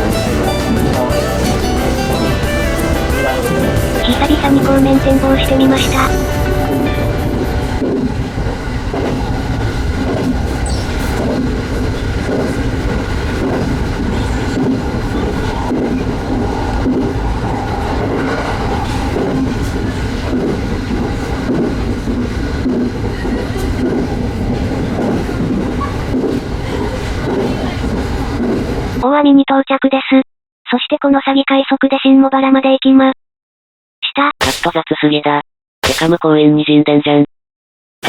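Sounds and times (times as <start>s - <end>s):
train wheels rumbling on rails: 0.0s - 29.0s
clacks over rail joints: 7.8s - 17.2s, 18.3s - 29.0s.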